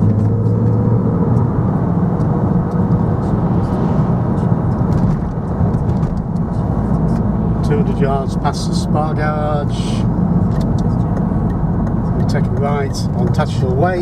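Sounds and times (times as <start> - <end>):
low hum: 0.0 - 8.0
car engine and tyre rumble: 0.0 - 14.0.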